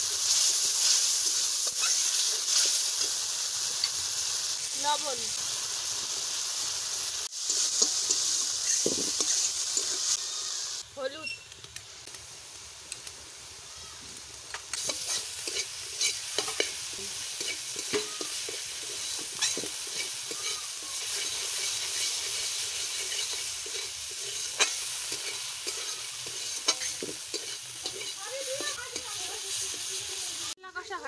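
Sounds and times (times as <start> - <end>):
spice paste sizzling in a wok: 0.0 - 31.0
metal spatula scraping pan: 14.8 - 29.2.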